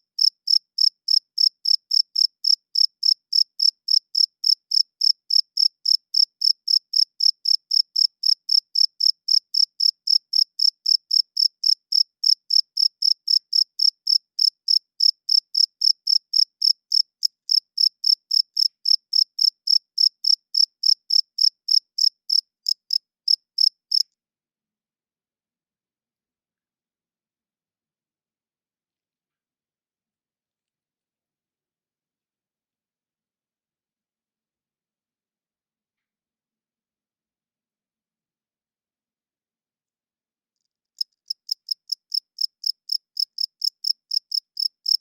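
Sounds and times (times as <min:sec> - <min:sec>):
cricket chirping: 0:00.2 - 0:24.0, 0:41.0 - 0:45.0.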